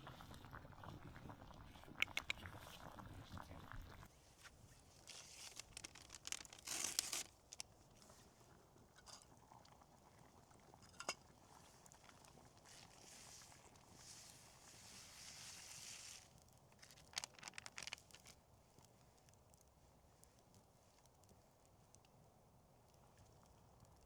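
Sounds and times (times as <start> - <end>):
crunching and rustling handling: 5.0 - 7.6, 15.4 - 19.0.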